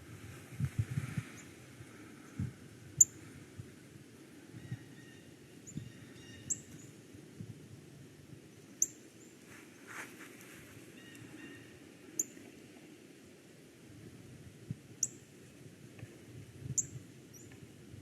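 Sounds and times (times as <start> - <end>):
faint birdsong: 4.4 - 7.0, 8.5 - 12.6.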